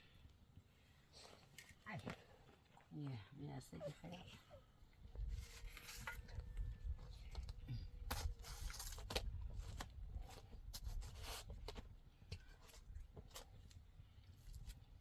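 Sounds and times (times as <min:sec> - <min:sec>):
scraping and rustling of handling: 0:03.8 - 0:14.9.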